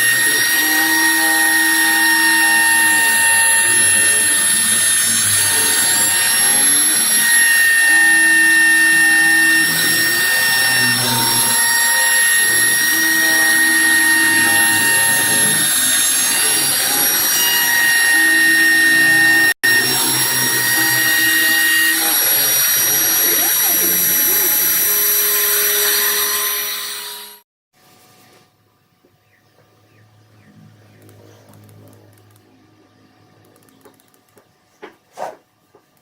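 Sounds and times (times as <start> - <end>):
stepper motors humming: 0.0 - 25.8
router spindle whine: 0.0 - 27.4.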